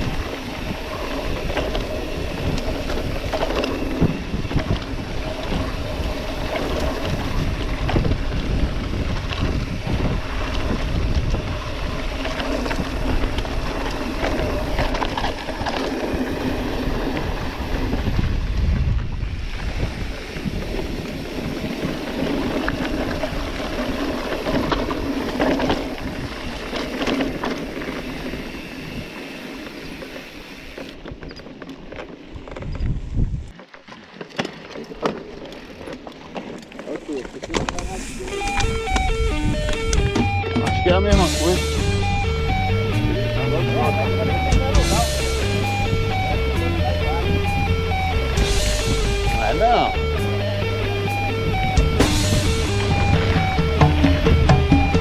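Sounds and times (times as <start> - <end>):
wind buffeting microphone: 0.0 - 33.6, 36.9 - 55.0
bike rattling: 0.0 - 55.0
tyres crunching on dirt: 19.6 - 55.0.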